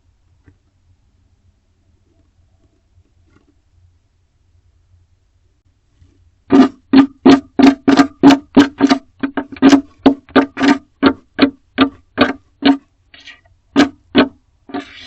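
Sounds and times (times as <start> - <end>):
owl scratching on wood: 6.5 - 15.0.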